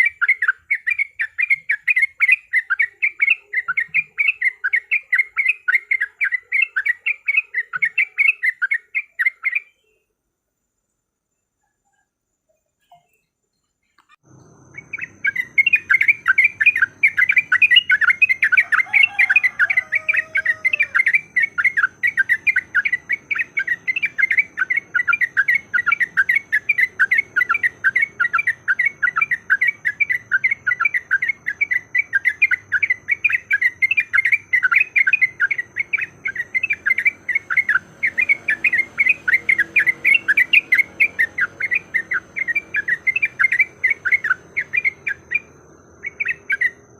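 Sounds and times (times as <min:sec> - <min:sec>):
bird chattering: 0:00.0 - 0:09.8, 0:14.0 - 0:46.9
lower sliding bird call: 0:14.4 - 0:46.9.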